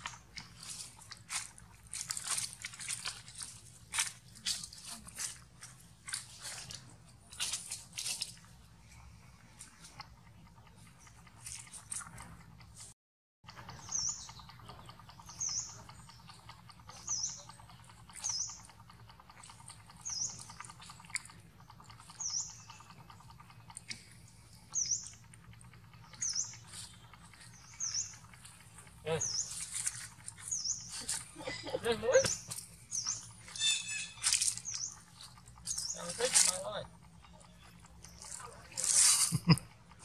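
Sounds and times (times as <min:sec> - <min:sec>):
bird chirping: 0:13.5 - 0:39.5.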